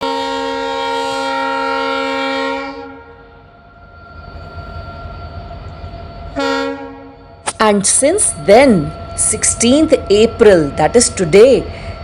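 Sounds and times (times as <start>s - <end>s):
train horn blast: 0.0s - 3.4s, 6.4s - 7.3s
low rumble of train running: 0.0s - 12.0s.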